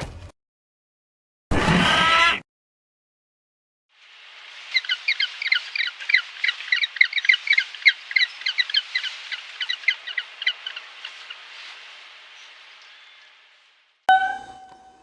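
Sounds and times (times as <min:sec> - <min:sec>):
steady hiss: 0:03.9 - 0:14.0
birds chirping: 0:04.6 - 0:14.8.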